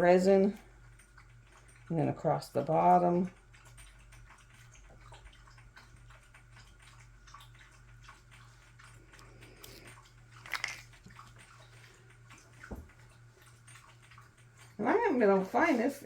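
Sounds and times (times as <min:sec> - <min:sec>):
steady low hum: 0:00.0 - 0:16.0
hand rubbing resin: 0:10.4 - 0:10.8.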